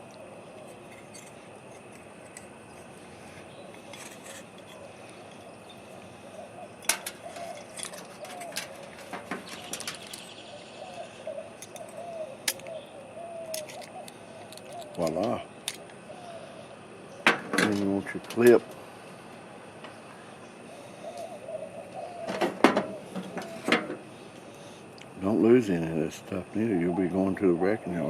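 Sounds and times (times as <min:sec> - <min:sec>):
small metal parts handled: 0:00.6 - 0:05.6, 0:06.8 - 0:10.4, 0:11.6 - 0:12.7, 0:13.5 - 0:15.9.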